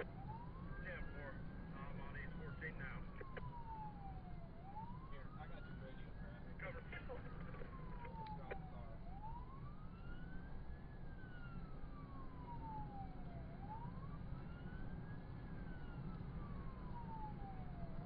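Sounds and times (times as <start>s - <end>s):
police siren wailing: 0.0s - 18.0s
road and engine rumble: 0.0s - 18.0s.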